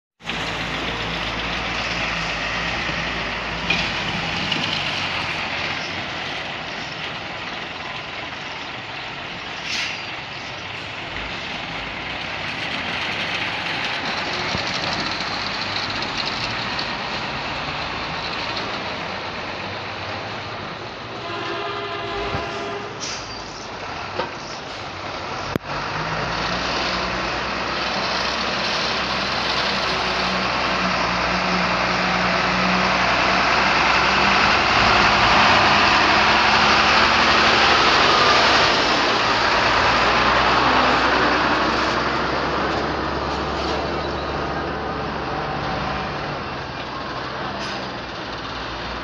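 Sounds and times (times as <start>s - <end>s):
heavy road traffic: 0.2s - 49.0s
vehicle horn blowing: 21.2s - 23.0s.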